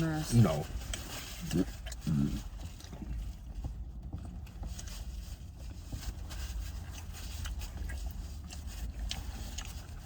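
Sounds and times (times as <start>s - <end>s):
person chewing: 0.4s - 3.5s, 6.8s - 10.0s.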